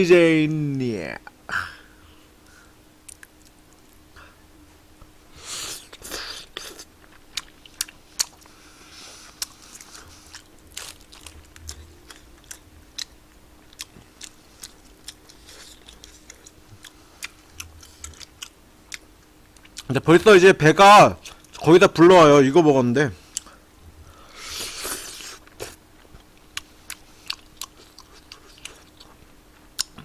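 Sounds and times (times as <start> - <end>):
person chewing chewy food: 2.4 - 4.4, 5.6 - 19.9, 21.2 - 21.6, 23.2 - 30.0.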